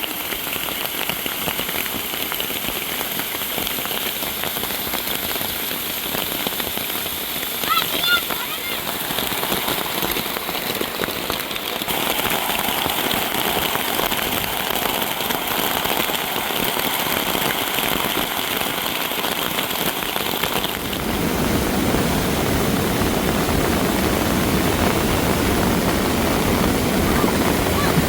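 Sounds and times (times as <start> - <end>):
rain hissing: 0.0 - 28.0
deep rushing: 20.8 - 28.0.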